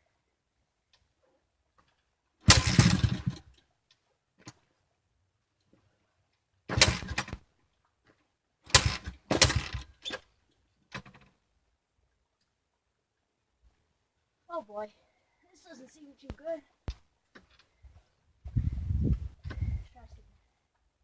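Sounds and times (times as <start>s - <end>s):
small engine sputtering without catching: 2.5s - 3.6s, 8.7s - 9.9s.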